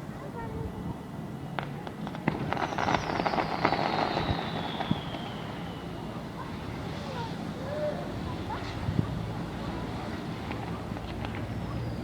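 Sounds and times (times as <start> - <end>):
fireworks crackling pops: 1.6 - 7.3, 8.5 - 12.0
firework whistle sliding down: 2.6 - 6.2.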